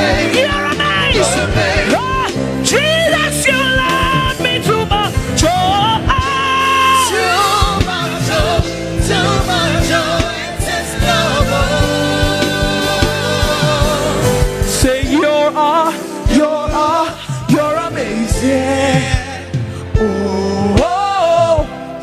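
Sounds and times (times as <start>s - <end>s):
woman singing: 0.0s - 10.6s
band with bass and drums: 0.0s - 22.0s.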